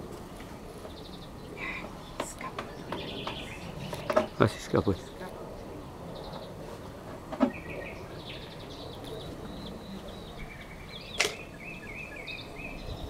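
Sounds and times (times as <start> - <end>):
songbirds trilling: 0.0 - 13.0.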